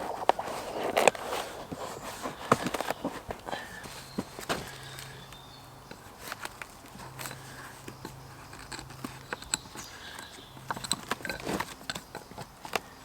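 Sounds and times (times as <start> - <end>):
rustling: 0.0 - 5.3.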